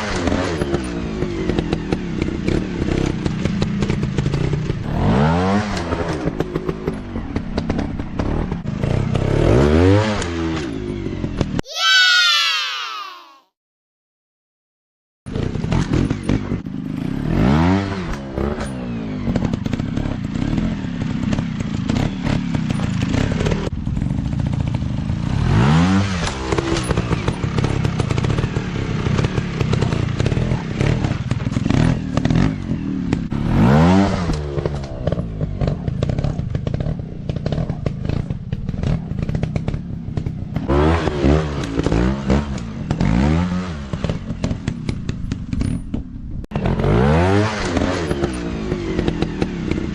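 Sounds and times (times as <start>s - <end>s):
dirt bike engines revving: 15.3s - 45.7s, 46.5s - 49.9s.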